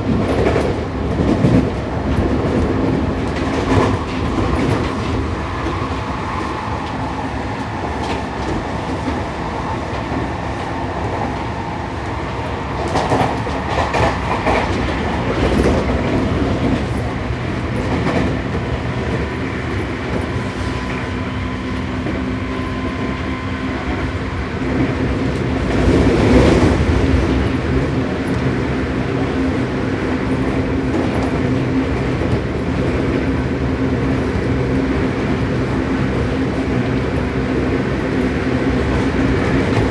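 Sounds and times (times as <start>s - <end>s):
train motor hum: 0.0s - 39.9s.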